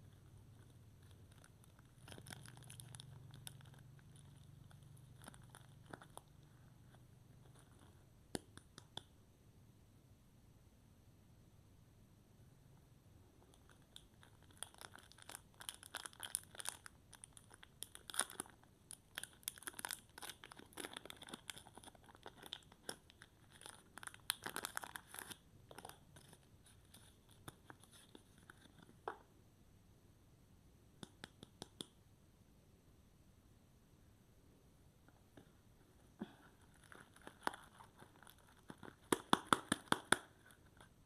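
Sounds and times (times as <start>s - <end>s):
wrapper crinkling and tearing: 1.0s - 6.3s, 13.7s - 28.8s, 36.6s - 40.9s.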